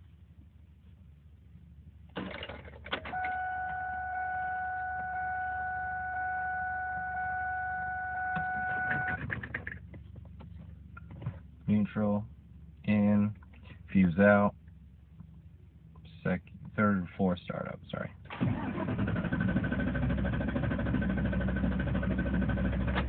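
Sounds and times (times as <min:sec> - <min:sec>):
engine cranking whine: 0:18.3 - 0:23.0.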